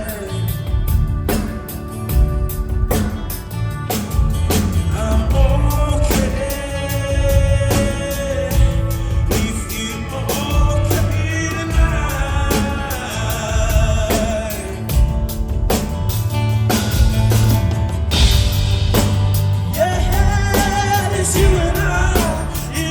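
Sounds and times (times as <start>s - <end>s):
person singing: 0.0s - 2.1s, 4.9s - 15.3s, 19.7s - 22.9s
rock band playing: 0.0s - 22.9s.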